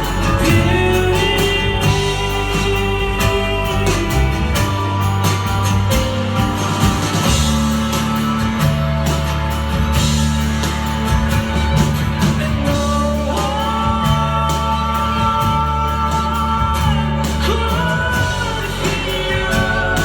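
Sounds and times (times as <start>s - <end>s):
person singing: 0.0s - 6.4s, 12.2s - 20.0s
bass line: 0.0s - 20.0s
live band music: 0.0s - 20.0s
steady drum beat: 0.0s - 20.0s.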